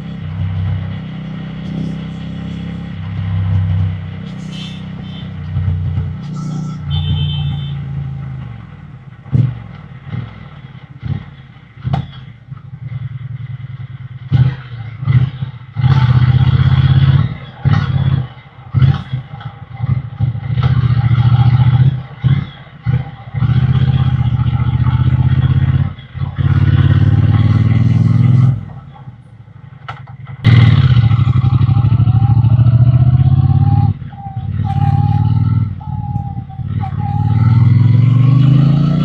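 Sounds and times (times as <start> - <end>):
motorcycle engine and exhaust revving: 0.0 - 39.0.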